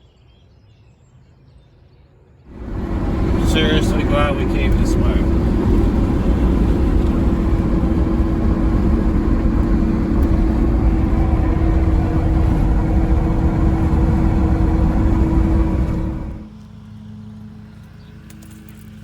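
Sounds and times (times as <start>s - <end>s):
truck driving: 2.5s - 16.5s.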